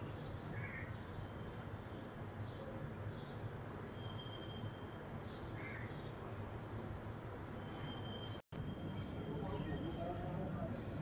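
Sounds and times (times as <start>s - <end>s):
birds calling: 0.0s - 11.0s
faint bird chirps: 0.4s - 6.2s.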